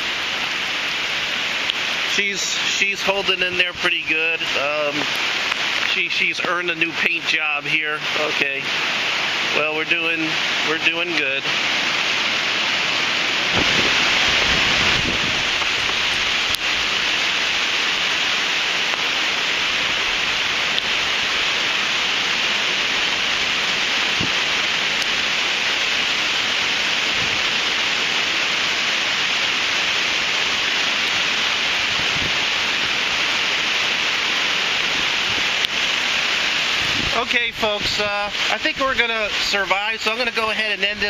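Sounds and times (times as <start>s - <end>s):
rain and wind hissing: 0.0s - 41.0s.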